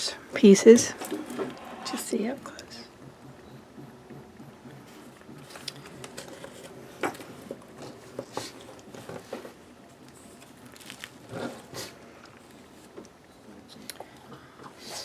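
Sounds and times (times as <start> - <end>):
faint steady hum: 0.0 - 15.0
paper rustling: 5.4 - 11.8.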